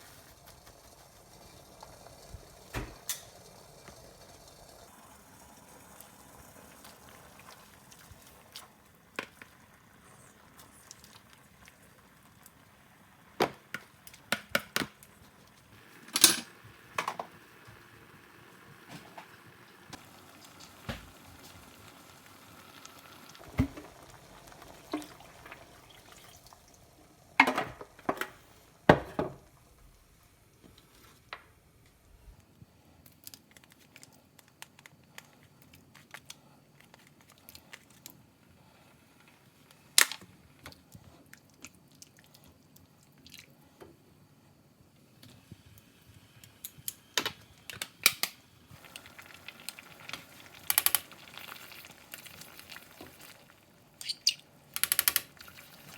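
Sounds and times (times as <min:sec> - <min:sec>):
utensils and dishware clinking: 0:16.0 - 0:16.6.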